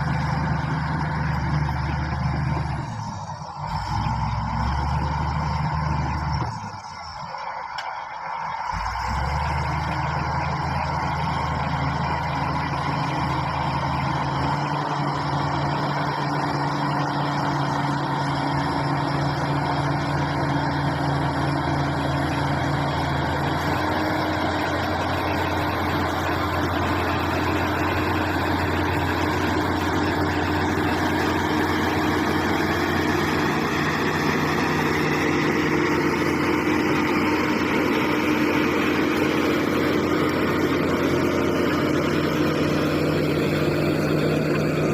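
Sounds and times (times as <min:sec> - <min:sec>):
bulldozer diesel engine running: 0:00.0 - 0:44.9.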